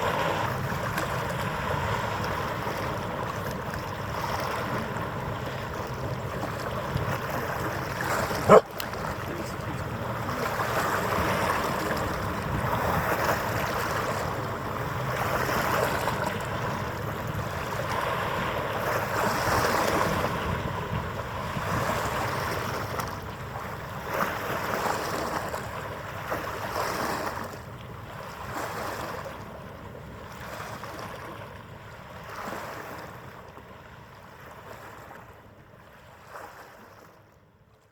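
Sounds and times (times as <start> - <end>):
wind on microphone: 0.0 - 24.6
water lapping in swells: 0.0 - 37.9.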